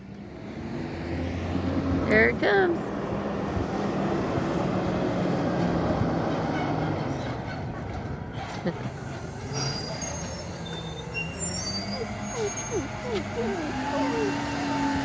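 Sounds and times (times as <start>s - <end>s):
garbage truck diesel engine: 2.8s - 15.0s
high-pitched brake squeals: 9.4s - 14.8s.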